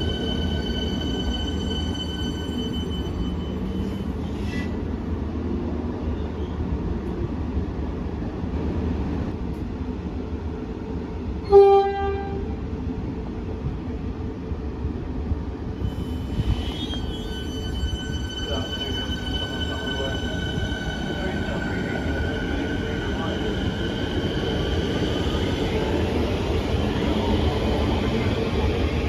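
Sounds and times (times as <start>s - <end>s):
electric train rumbling: 0.0s - 29.0s
train horn toot: 11.4s - 12.6s.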